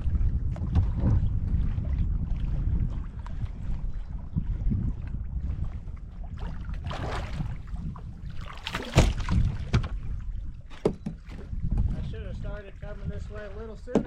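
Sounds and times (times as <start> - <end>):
wind rumbling on microphone: 0.0 - 14.0
water splashing: 6.3 - 10.4
knocks against kayak: 8.6 - 10.0, 10.7 - 12.0.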